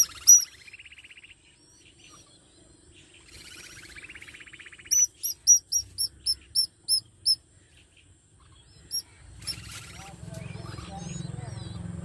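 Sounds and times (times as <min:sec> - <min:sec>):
bird chirping and trilling: 0:00.0 - 0:12.0
noisy rustle: 0:09.3 - 0:10.6.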